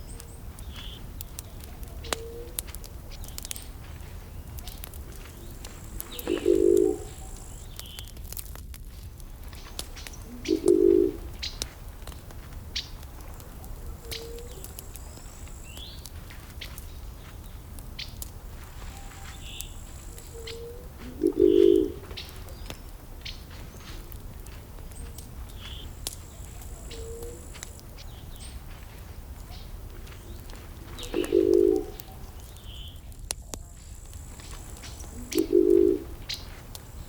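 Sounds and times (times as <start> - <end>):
small birds chirping: 0.0 - 8.2, 9.2 - 37.0
wood fire crackling and popping: 0.0 - 37.0
low cooing bird call: 1.7 - 2.7, 5.4 - 8.0, 10.2 - 11.6, 13.9 - 15.3, 18.8 - 22.7, 25.0 - 28.2, 30.8 - 32.8, 34.7 - 36.6.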